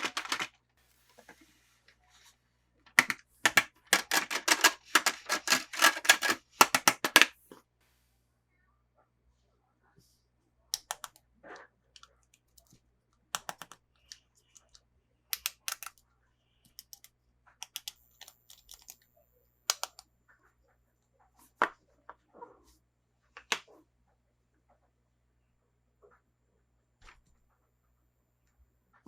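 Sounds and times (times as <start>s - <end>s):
plastic packaging clicks and crackles: 0.0s - 0.6s, 2.9s - 7.3s.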